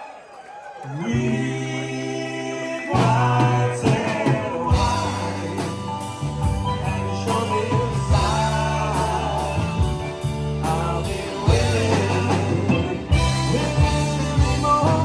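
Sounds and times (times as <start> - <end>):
drums: 0.0 - 15.0
rock music with singer: 0.9 - 15.0.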